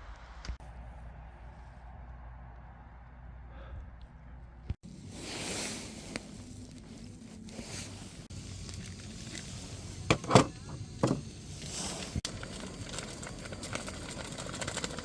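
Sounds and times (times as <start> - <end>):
campfire crackling: 4.8 - 15.0.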